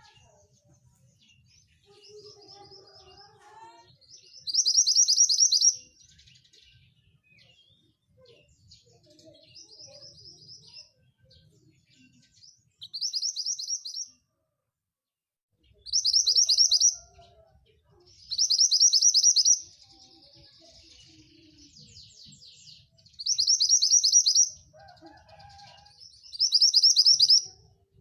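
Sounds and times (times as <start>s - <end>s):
bird singing high rapid notes: 4.0s - 7.8s, 12.0s - 14.2s, 15.7s - 17.0s, 18.2s - 20.4s, 21.5s - 24.6s, 26.2s - 27.6s.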